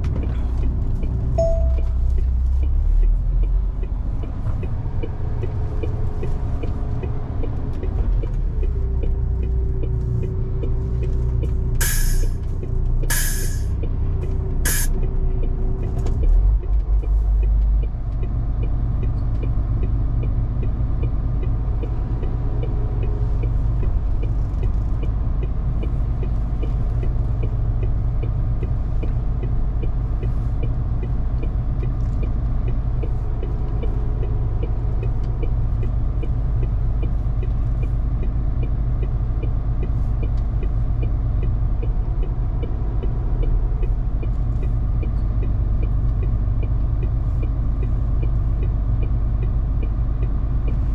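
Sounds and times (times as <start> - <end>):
truck diesel engine rumbling: 0.0 - 15.8
road noise: 0.0 - 50.9.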